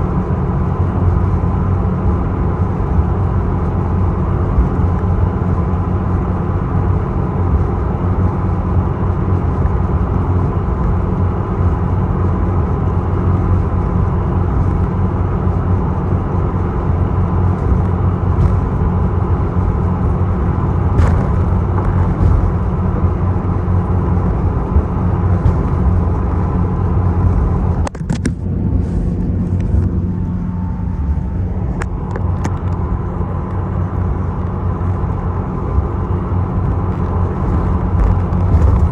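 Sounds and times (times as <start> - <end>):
boat engine low rumble: 0.0 - 38.9
sharp knocks and clatters: 17.5 - 28.5.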